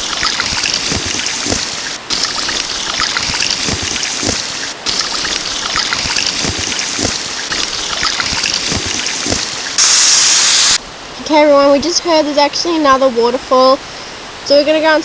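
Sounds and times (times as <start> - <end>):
waterfall rushing: 0.0 - 11.8.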